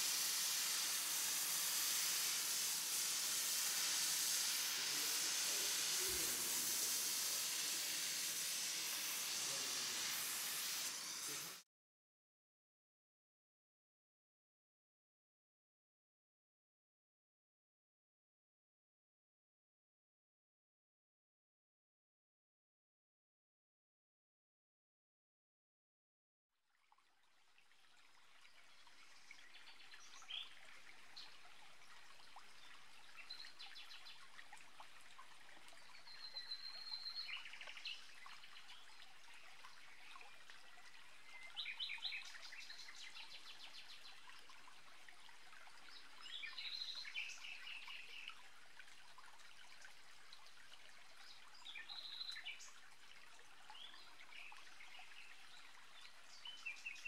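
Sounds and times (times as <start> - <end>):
steady hiss: 0.0 - 11.6.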